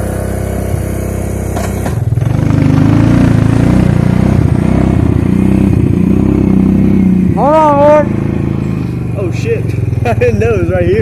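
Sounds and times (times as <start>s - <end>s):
atv engine revving: 0.0s - 11.0s.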